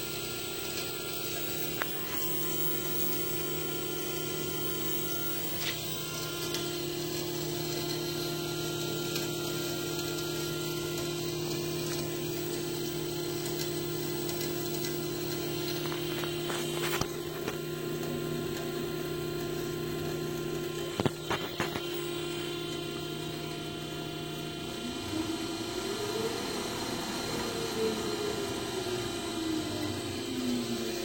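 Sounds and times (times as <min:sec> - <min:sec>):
motor humming: 0:00.0 - 0:31.0.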